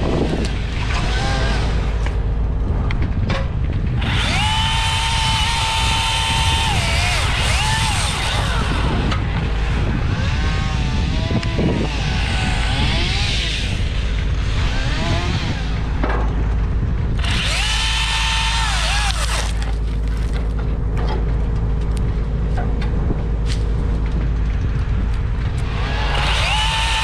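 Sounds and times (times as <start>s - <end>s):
low rumble: 0.0s - 27.0s
power tool motor whining: 4.0s - 16.0s, 17.2s - 20.3s, 25.6s - 27.0s.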